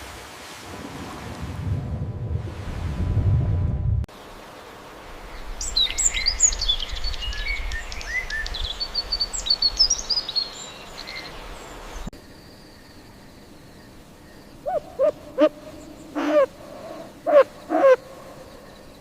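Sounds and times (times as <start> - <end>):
low rumble: 1.2 - 4.1
steady outdoor hiss: 4.1 - 19.0
small birds chirping: 5.3 - 19.0.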